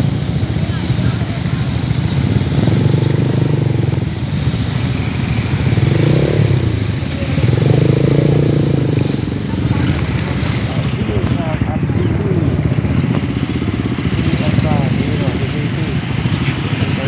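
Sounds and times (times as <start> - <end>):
motorcycles riding past: 0.0 - 17.0.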